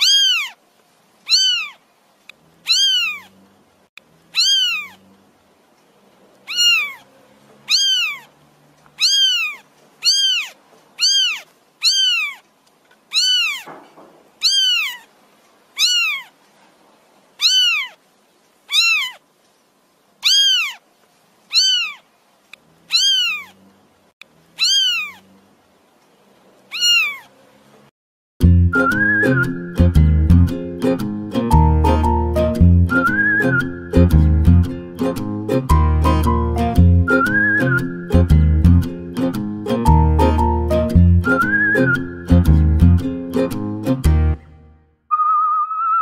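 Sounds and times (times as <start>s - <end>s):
kittens mewing: 0.0s - 0.6s, 1.3s - 1.8s, 2.6s - 3.4s, 4.3s - 5.1s, 6.4s - 8.4s, 9.0s - 12.5s, 13.1s - 15.1s, 15.8s - 16.4s, 17.4s - 18.0s, 18.7s - 19.2s, 20.2s - 20.8s, 21.5s - 22.1s, 22.8s - 23.6s, 24.6s - 25.3s, 26.7s - 27.4s.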